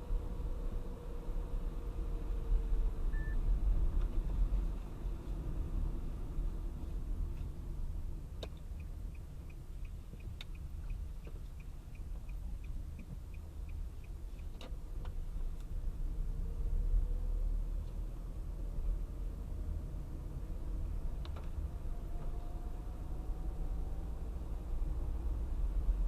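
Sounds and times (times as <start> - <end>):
low road and engine rumble: 0.0 - 26.0
turn signal relay ticking: 8.4 - 15.7.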